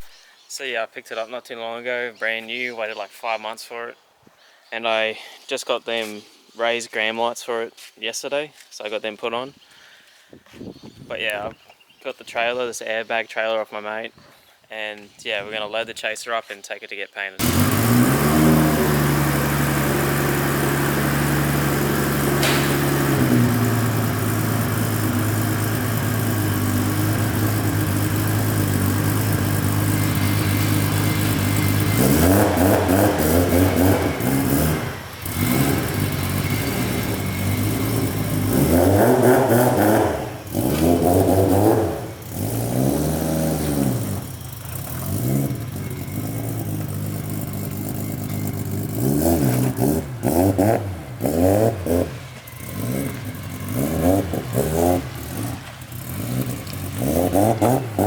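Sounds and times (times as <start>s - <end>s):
car engine revving: 17.4s - 58.0s.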